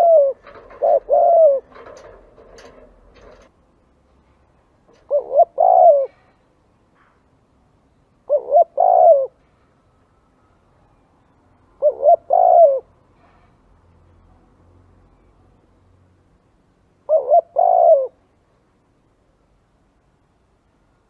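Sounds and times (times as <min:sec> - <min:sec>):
dove cooing: 0:00.0 - 0:03.5, 0:04.9 - 0:06.4, 0:08.3 - 0:09.4, 0:11.8 - 0:12.9, 0:17.1 - 0:18.2.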